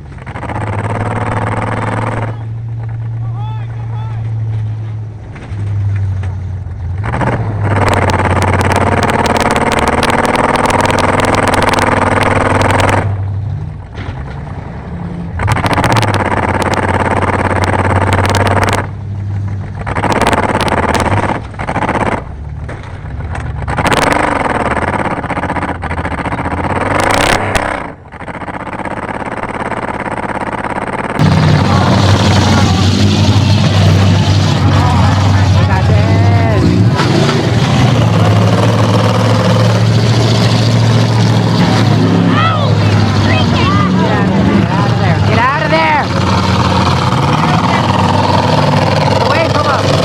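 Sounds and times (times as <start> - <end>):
race car engine revving: 0.0 - 50.0
rattles and clanks: 4.2 - 14.7, 15.4 - 42.2.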